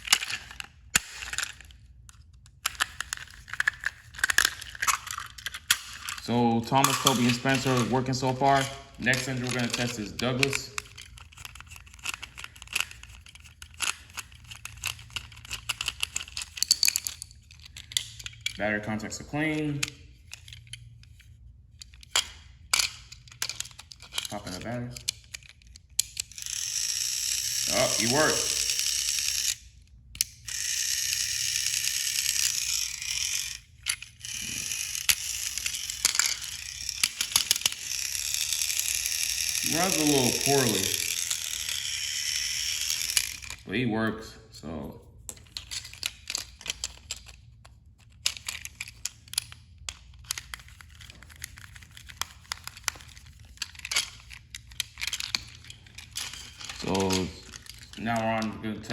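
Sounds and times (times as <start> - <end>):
clicks and rattles: 0.0 - 18.6, 45.2 - 58.9
plastic toy train being handled: 0.0 - 43.7, 45.2 - 58.9.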